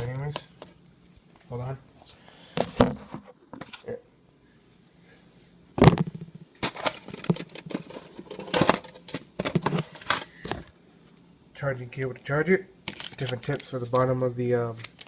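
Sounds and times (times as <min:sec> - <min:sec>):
packaging rustling: 0:06.6 - 0:10.6, 0:12.9 - 0:14.2, 0:14.8 - 0:15.0.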